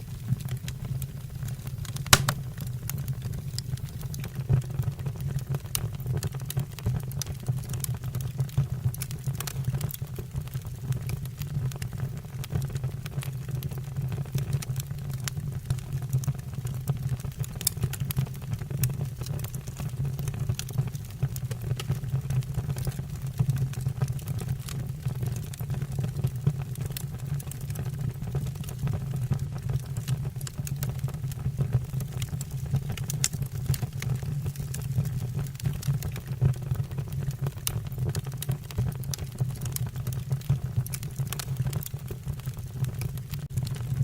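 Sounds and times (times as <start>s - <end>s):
fire rumbling: 0.0s - 5.6s
logs crackling and popping: 0.0s - 13.7s, 20.5s - 27.7s, 29.8s - 44.0s.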